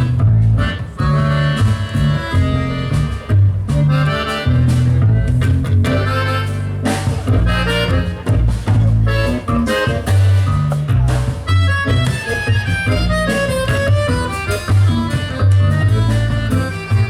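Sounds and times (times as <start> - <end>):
bass line: 0.0 - 17.0
drum beats: 0.0 - 17.0
reedy lead melody: 0.0 - 17.0.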